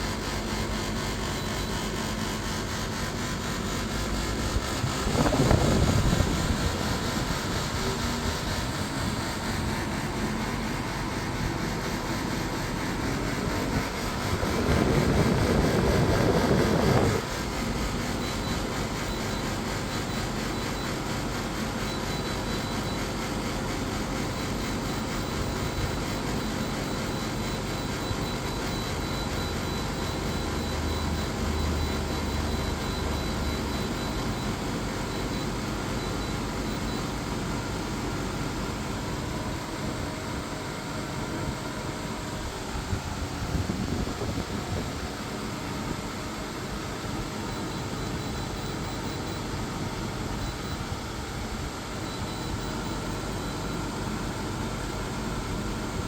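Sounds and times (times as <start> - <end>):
faint high whine: 0.0 - 45.7, 46.4 - 56.0
air conditioner fan rushing: 0.0 - 56.0.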